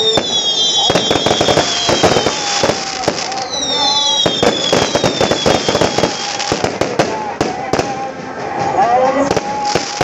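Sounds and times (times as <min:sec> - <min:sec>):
whistling tone gliding down: 0:00.0 - 0:06.4
fireworks bangs and crackling: 0:00.0 - 0:10.0.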